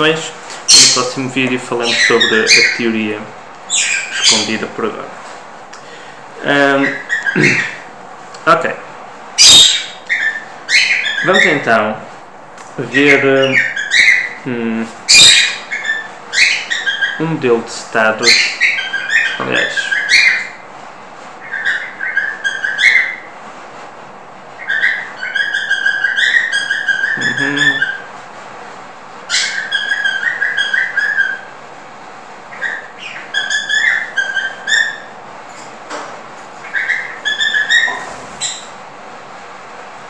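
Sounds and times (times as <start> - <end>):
small bird chirping: 0.7 - 1.1, 1.8 - 2.8, 3.7 - 4.6, 9.4 - 11.6, 15.1 - 17.2, 29.3 - 31.5, 32.5 - 35.2, 36.6 - 38.7.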